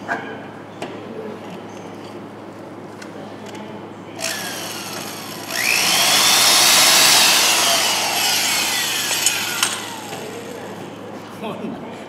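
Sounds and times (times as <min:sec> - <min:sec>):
high-speed motor whining: 0:04.2 - 0:10.8.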